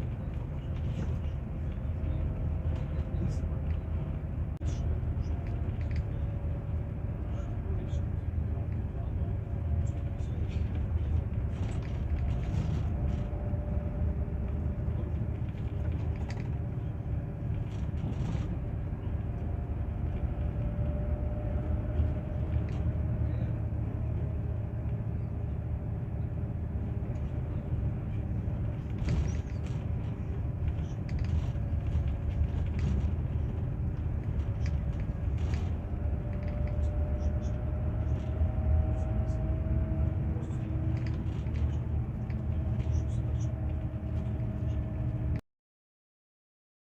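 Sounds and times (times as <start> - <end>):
coach engine low rumble: 0.0 - 45.4
light clicks and creaks: 4.6 - 6.3, 14.4 - 16.8, 28.2 - 39.5, 40.1 - 45.2.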